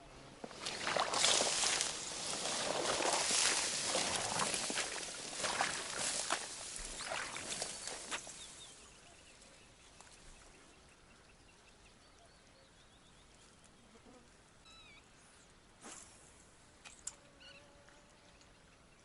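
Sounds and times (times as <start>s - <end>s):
water splashing: 0.4s - 8.6s
rustling: 0.4s - 8.8s
faint small birds chirping: 6.0s - 15.6s, 17.0s - 19.0s.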